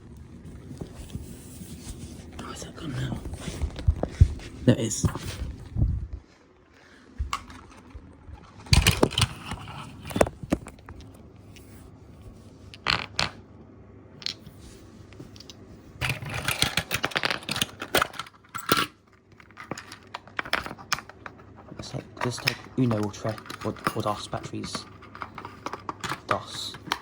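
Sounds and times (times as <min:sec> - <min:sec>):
plastic clicks and scrapes: 0:16.0 - 0:27.0.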